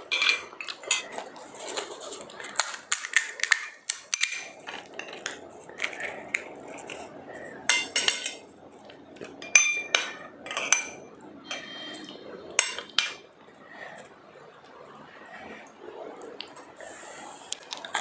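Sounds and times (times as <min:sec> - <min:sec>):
dishes and cutlery clinking: 0:00.0 - 0:01.8, 0:02.9 - 0:08.5, 0:09.2 - 0:13.3
dish handling noise: 0:00.0 - 0:08.5, 0:09.2 - 0:12.0.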